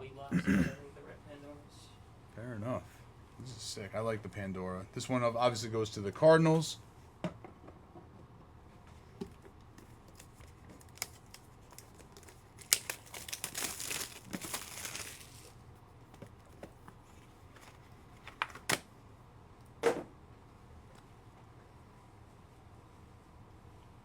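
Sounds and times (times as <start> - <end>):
plastic packaging crinkling: 9.8 - 15.6
cards clicking and tapping: 17.6 - 18.9.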